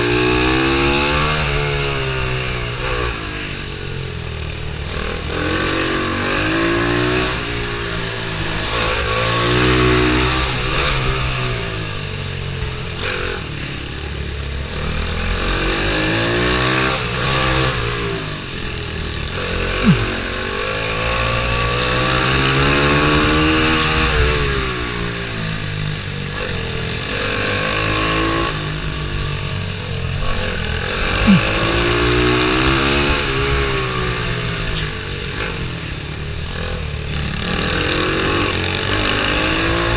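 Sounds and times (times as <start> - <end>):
small motorbike engine revving: 14.6 - 39.9
short sharp sounds: 19.8 - 20.2.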